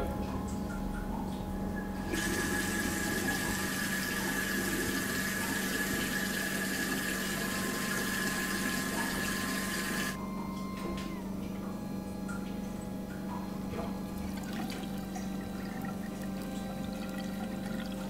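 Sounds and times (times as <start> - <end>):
steady low hum: 0.0 - 18.0
water running from tap: 2.1 - 10.2, 14.2 - 18.0
faint steady whistle: 7.4 - 11.3.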